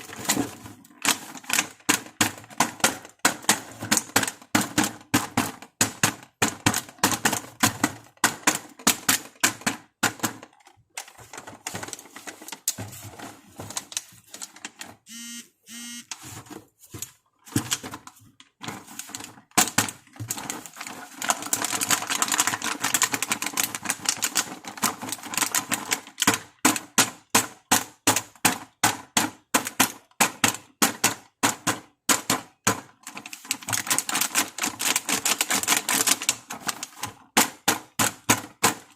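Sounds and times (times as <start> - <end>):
plastic pieces clicking: 17.5 - 26.5.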